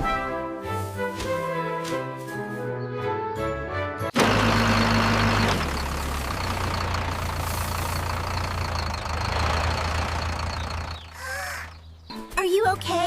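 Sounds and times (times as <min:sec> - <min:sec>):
cartoon tractor engine drone: 0:04.0 - 0:11.9.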